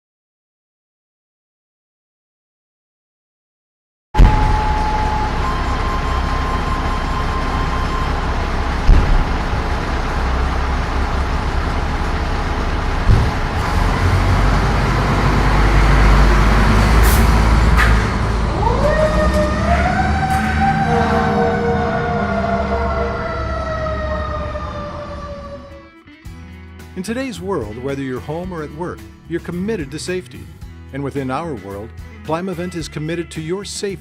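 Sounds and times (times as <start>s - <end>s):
siren winding up: 4.2s - 9.6s, 18.4s - 26.0s
fire engine rumbling: 4.2s - 26.0s.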